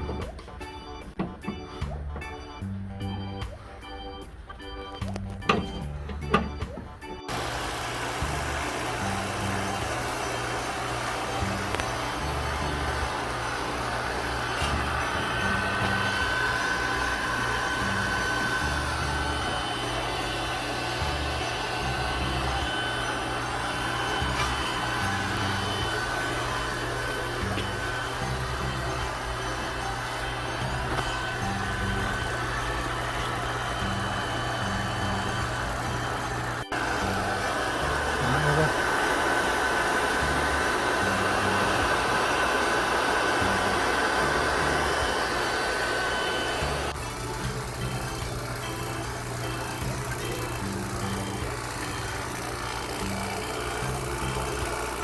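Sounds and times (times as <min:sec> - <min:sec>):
background music with bass: 0:00.0 - 0:07.4, 0:11.1 - 0:13.6, 0:14.3 - 0:38.8, 0:46.6 - 0:55.0
hair dryer blowing: 0:07.3 - 0:55.0
small electric motor whirring: 0:07.3 - 0:55.0.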